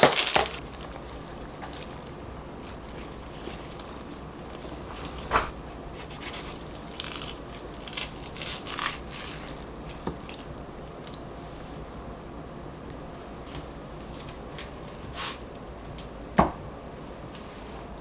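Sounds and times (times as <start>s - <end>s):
scraping and rustling: 0.0s - 10.2s
steady low hum: 0.0s - 18.0s.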